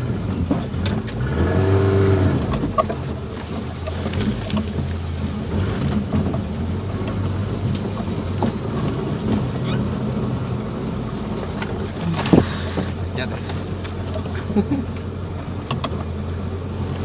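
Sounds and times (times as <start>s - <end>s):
car engine running at low revs: 0.0s - 17.0s.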